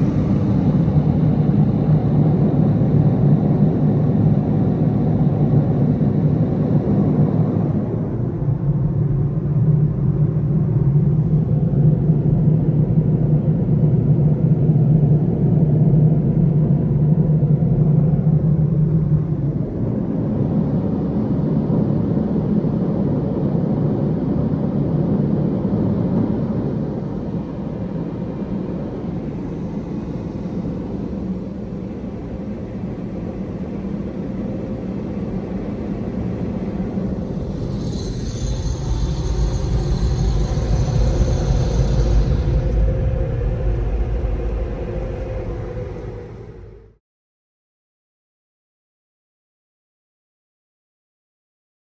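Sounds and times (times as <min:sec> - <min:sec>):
strong hum: 0:00.0 - 0:47.0
car wash mechanical rumble: 0:35.2 - 0:46.9.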